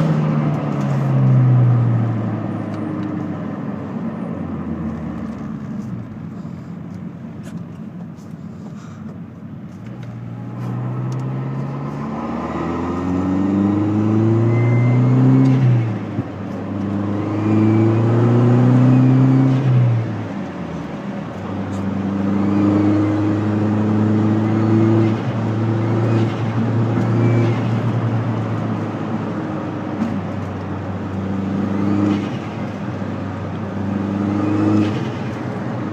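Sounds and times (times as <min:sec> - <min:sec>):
car engine accelerating: 0:09.7 - 0:35.9.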